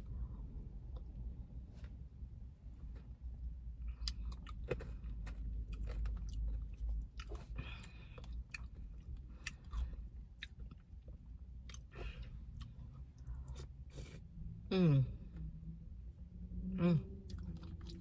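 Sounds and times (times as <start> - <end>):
low rumble: 0.0 - 18.0
close chewing with mouth clicks: 3.8 - 14.2, 17.0 - 18.0.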